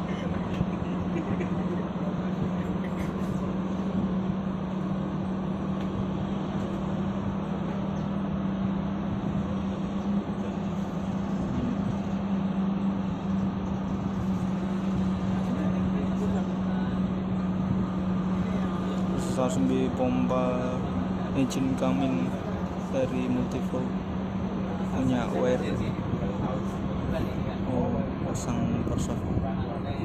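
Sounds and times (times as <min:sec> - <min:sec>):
large diesel engine running: 0:00.0 - 0:30.0.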